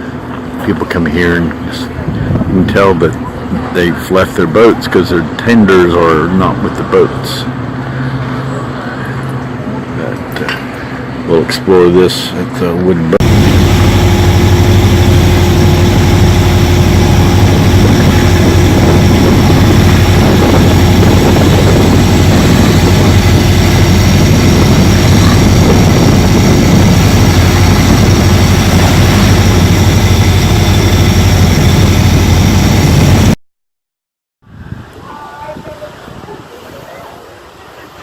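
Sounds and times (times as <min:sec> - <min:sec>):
engine drone: 0:00.0 - 0:33.4.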